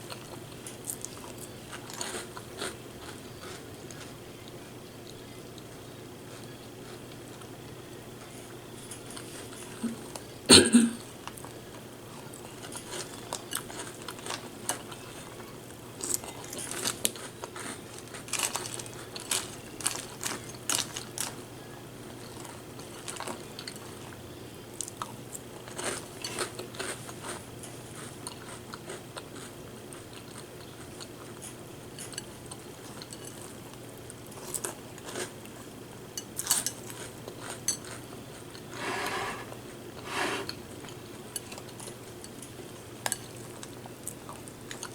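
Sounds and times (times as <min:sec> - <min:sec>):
cereal crunching and chewing: 0:12.2 - 0:21.4, 0:24.8 - 0:35.7
spoon scraping and scooping: 0:38.7 - 0:40.6.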